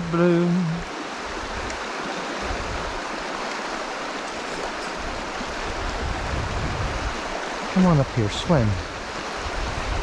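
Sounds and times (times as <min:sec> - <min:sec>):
creek water rushing: 0:00.0 - 0:10.0.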